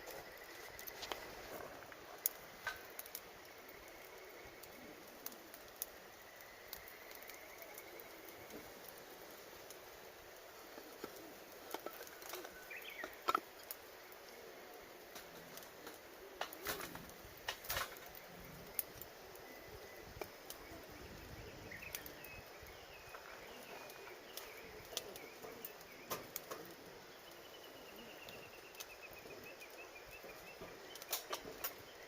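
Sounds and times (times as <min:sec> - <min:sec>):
burning firewood popping: 0:00.0 - 0:32.0
wild birds calling: 0:00.0 - 0:32.0
wood fire crackling: 0:00.0 - 0:32.0.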